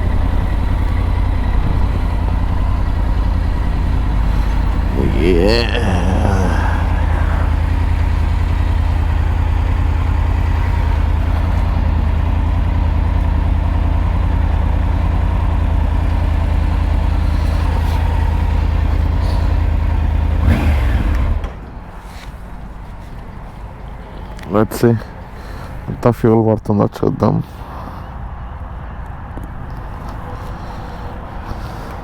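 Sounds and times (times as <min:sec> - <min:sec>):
motorcycle engine drone: 0:00.0 - 0:24.5.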